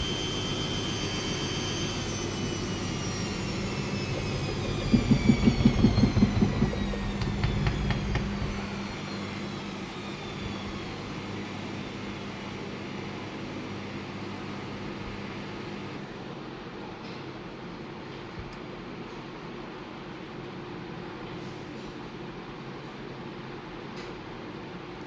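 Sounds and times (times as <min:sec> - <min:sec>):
steady low hum: 0:00.0 - 0:16.2
washing machine spinning down: 0:00.0 - 0:16.6
rapid rhythmic thumping: 0:03.6 - 0:09.0.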